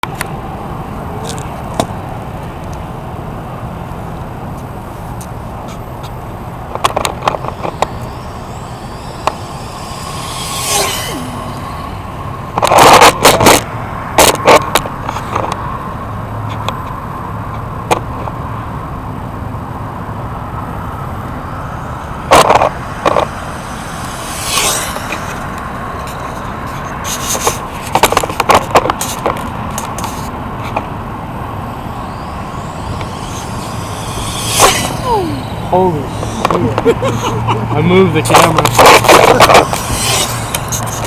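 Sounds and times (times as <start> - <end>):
toy car motor whine: 5.9 - 13.5, 21.3 - 26.5, 31.4 - 37.6, 38.3 - 41.0.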